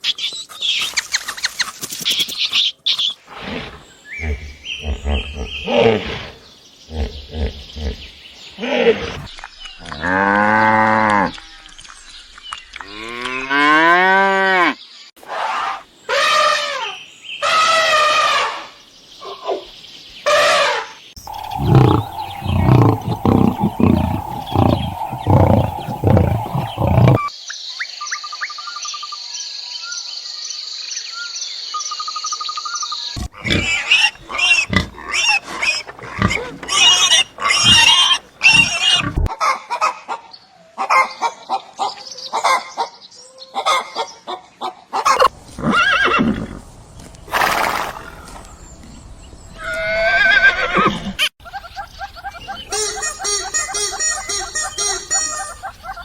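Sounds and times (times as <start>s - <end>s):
quick animal calls and clicks: 0.0s - 3.2s
long pitched animal calls: 21.2s - 27.3s.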